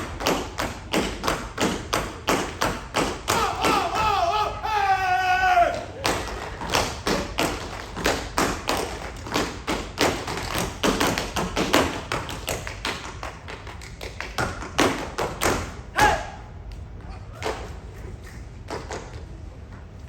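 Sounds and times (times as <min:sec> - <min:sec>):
tap dance taps: 0:00.0 - 0:04.2, 0:05.7 - 0:16.2.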